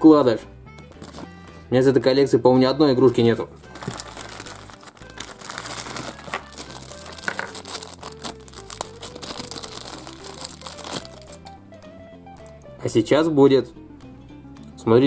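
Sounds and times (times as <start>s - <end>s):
plastic bag crinkling: 3.7s - 11.4s.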